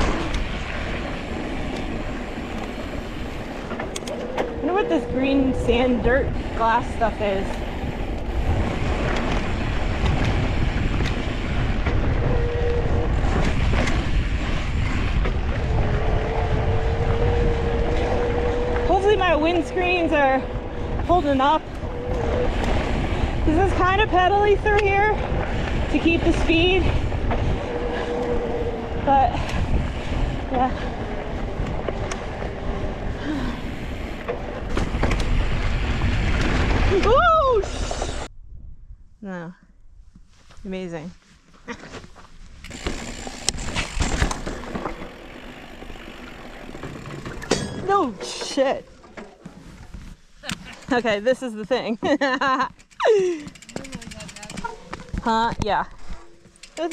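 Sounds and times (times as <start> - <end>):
bike clicks and rattles: 0.0 - 37.2, 41.9 - 56.9
bike tyres rolling on dirt: 0.0 - 38.3, 40.2 - 56.9
wind buffeting microphone: 0.0 - 41.2.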